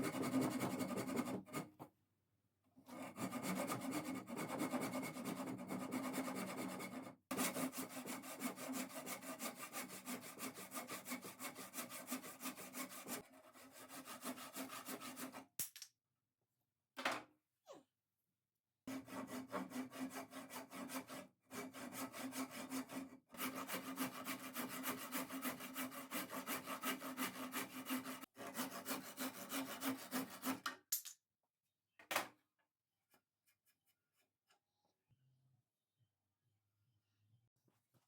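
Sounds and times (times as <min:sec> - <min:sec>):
hand saw cutting wood: 0:00.0 - 0:01.7, 0:02.9 - 0:15.5, 0:18.9 - 0:30.7.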